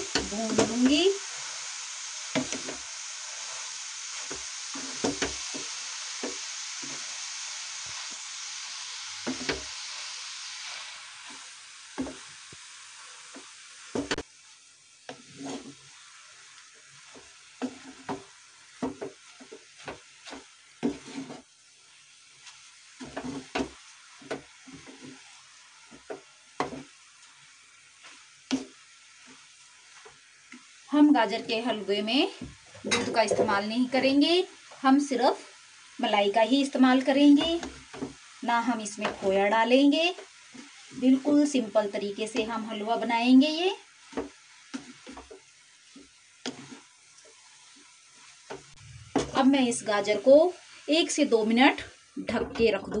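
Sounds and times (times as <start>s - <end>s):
spatula knocking and scraping pan: 0.0s - 1.0s, 2.3s - 2.9s, 4.2s - 7.1s, 9.2s - 9.8s, 12.0s - 12.3s, 13.3s - 14.2s, 15.1s - 15.8s, 17.0s - 21.5s, 22.4s - 25.3s, 25.9s - 27.0s, 28.0s - 29.4s, 32.4s - 33.6s, 37.3s - 38.3s, 38.9s - 39.5s, 42.3s - 42.6s, 44.0s - 49.5s, 52.3s - 53.0s
carrots sizzling in a pan: 0.0s - 53.0s.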